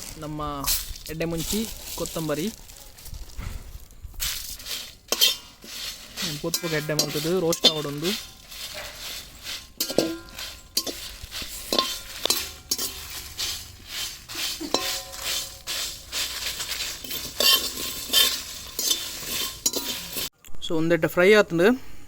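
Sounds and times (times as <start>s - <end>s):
spices sizzling: 0.0s - 20.3s
metal spatula scraping pan: 4.3s - 20.3s.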